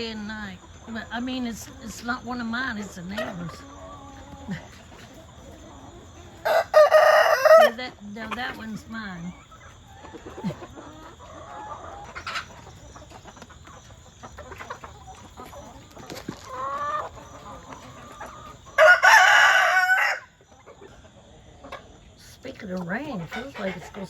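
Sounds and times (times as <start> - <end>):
chickens clucking softly: 0.0 - 24.0
rooster crowing: 6.4 - 7.8, 18.8 - 20.4.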